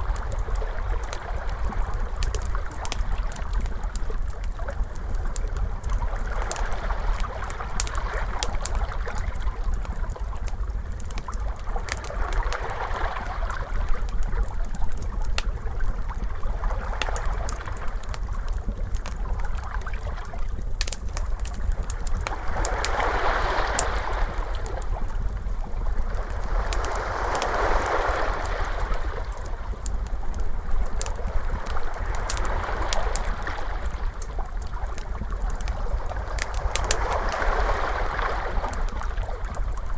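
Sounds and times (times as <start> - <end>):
wood fire crackling: 0.0 - 39.9
ocean waves washing: 22.2 - 25.2, 26.0 - 34.3, 35.6 - 39.9.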